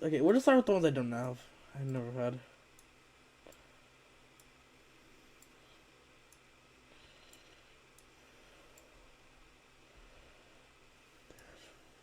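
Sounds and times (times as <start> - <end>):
faint steady hiss: 0.0 - 12.0
soft clicks: 4.3 - 4.6, 5.4 - 5.6, 6.3 - 6.5.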